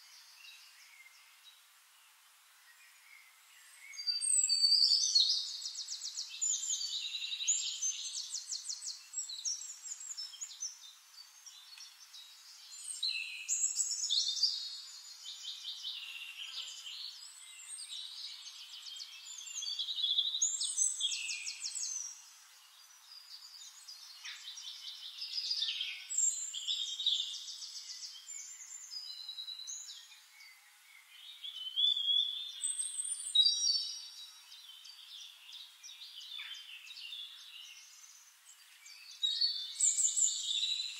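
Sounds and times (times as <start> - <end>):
birds singing: 0.0 - 40.9.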